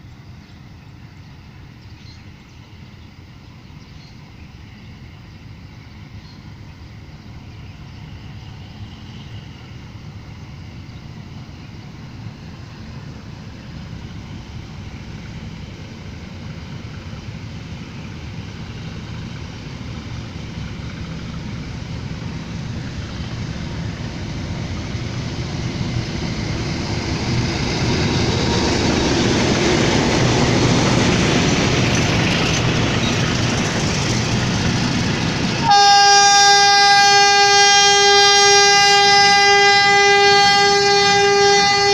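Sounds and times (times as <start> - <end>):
diesel locomotive engine: 0.0 - 41.9
locomotive air horn: 35.6 - 41.9.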